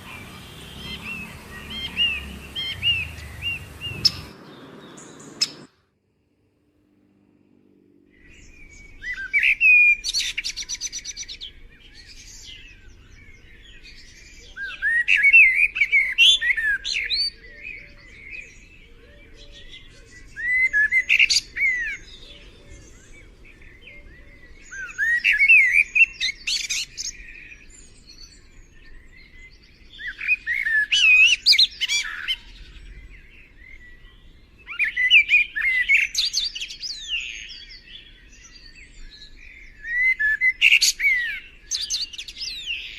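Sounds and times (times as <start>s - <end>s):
songbird chirping and whistling: 0.0s - 5.7s.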